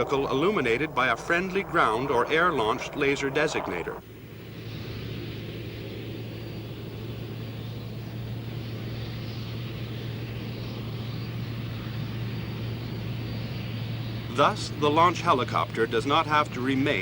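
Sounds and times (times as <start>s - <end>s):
rushing noise: 0.0s - 4.0s
helicopter engine and rotor hum: 0.0s - 17.0s.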